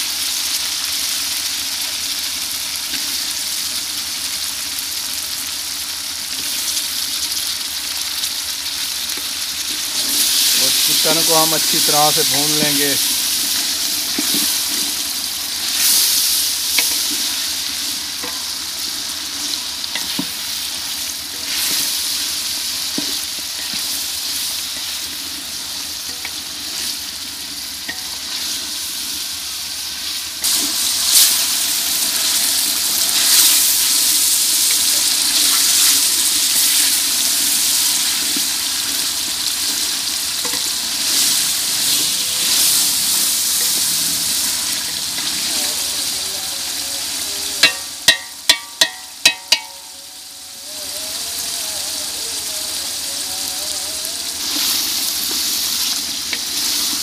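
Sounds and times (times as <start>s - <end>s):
chicken sizzling in oil: 0.0s - 57.0s.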